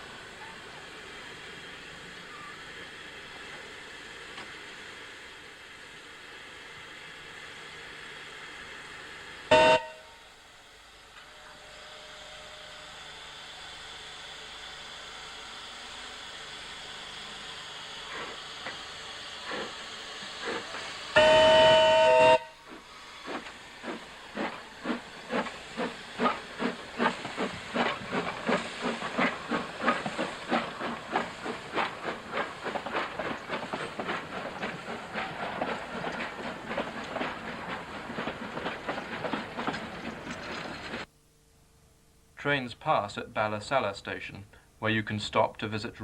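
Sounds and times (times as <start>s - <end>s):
steam locomotive exhaust chuffs: 0.0s - 41.1s
steam locomotive whistle: 9.5s - 10.2s, 21.1s - 22.6s.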